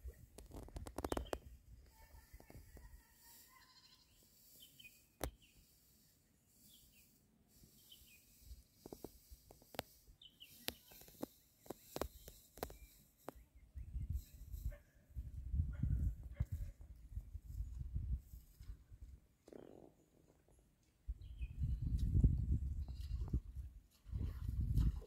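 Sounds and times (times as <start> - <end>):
faint bird chirps: 0.0 - 8.5, 10.2 - 14.7.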